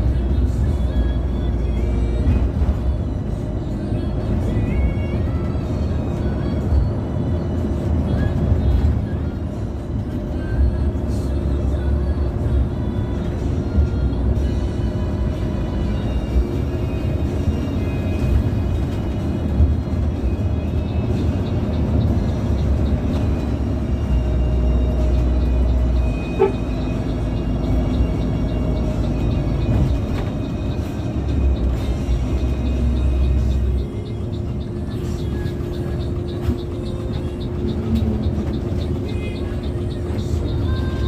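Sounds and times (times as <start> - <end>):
bus engine and road rumble: 0.0 - 41.0
music playing: 0.0 - 41.0.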